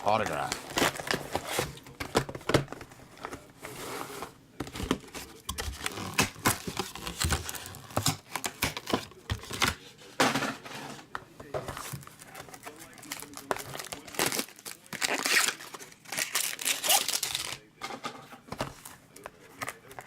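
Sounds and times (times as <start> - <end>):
card wrapper crinkling and tearing: 4.8 - 9.8, 11.9 - 17.7.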